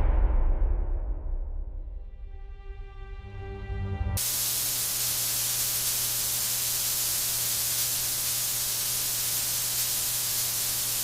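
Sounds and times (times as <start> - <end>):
music: 0.0 - 4.2
low hum: 0.0 - 7.2
static-like hiss: 4.2 - 11.0.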